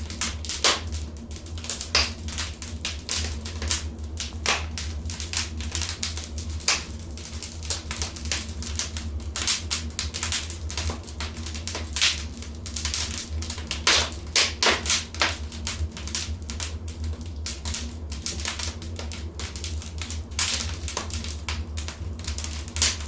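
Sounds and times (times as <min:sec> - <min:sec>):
low fire rumble: 0:00.0 - 0:23.0
wood fire crackling: 0:00.0 - 0:23.0.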